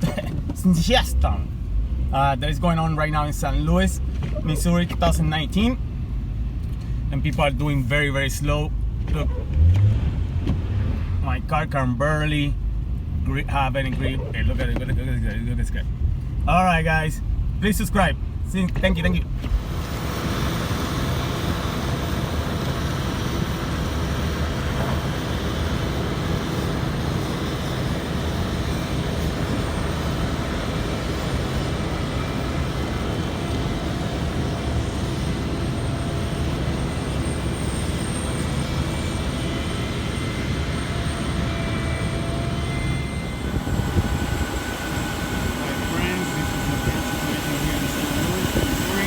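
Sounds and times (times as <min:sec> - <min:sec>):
low vehicle rumble: 0:00.0 - 0:49.0
faint steady tones: 0:25.3 - 0:49.0.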